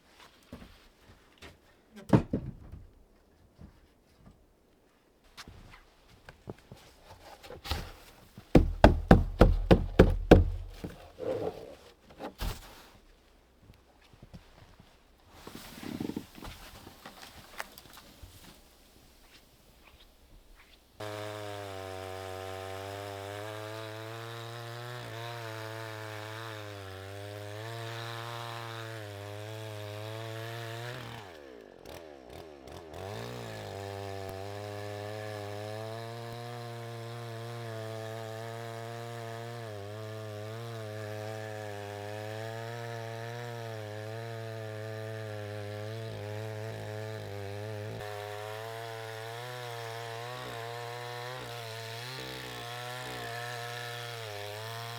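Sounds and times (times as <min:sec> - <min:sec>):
chainsaw cutting: 0:07.4 - 0:11.9, 0:21.0 - 0:54.9.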